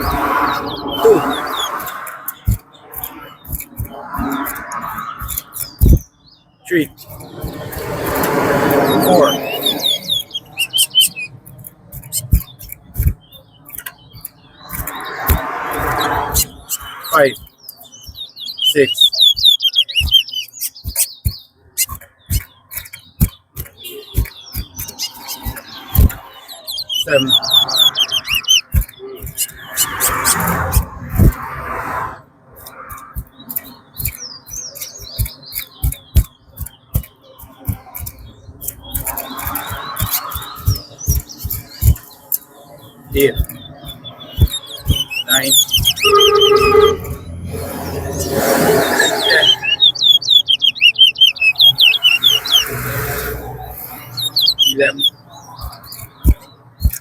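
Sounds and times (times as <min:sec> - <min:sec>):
dull thumps: 0:00.0 - 0:06.2, 0:10.2 - 0:18.4, 0:19.0 - 0:47.4, 0:54.2 - 0:57.0
finch chirps and call notes: 0:00.0 - 0:31.6, 0:32.6 - 0:57.0
sharp clicks and knocks: 0:00.0 - 0:57.0.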